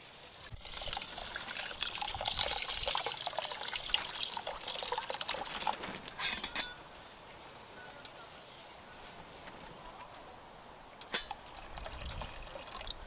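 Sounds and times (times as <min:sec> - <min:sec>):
water running and splashing: 0:00.0 - 0:06.3, 0:11.0 - 0:13.0.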